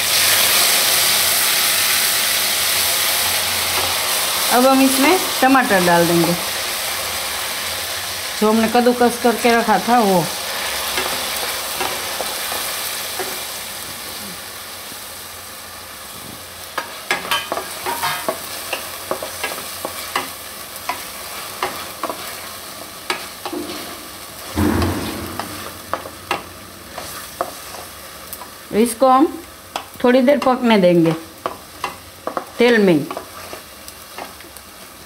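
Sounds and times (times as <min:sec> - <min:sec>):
tomato sizzling in hot oil: 0:00.0 - 0:35.0
thump: 0:24.6 - 0:26.2.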